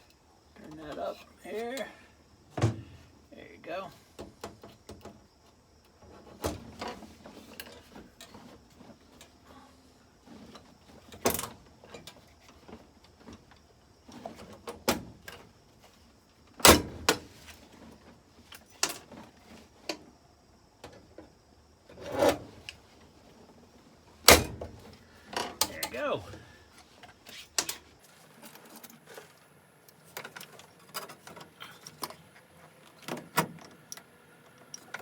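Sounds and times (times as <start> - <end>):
tool handling noise: 24.2 - 35.0.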